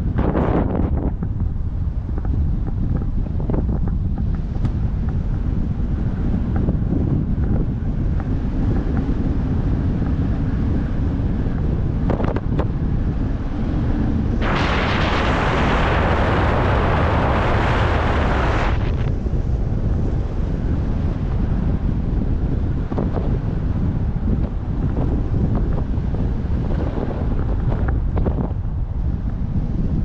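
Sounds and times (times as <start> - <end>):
wind buffeting microphone: 0.0 - 30.0
loud rushing hiss: 14.4 - 18.9.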